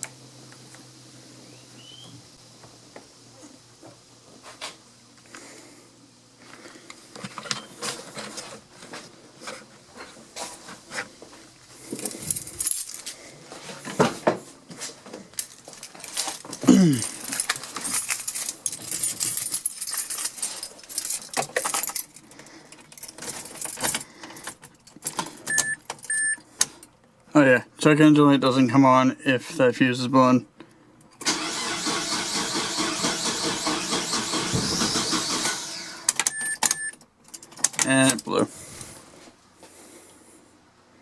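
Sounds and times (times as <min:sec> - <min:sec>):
car keys jangling: 0:12.0 - 0:13.1, 0:15.4 - 0:25.2
short electronic beep: 0:36.3 - 0:37.0.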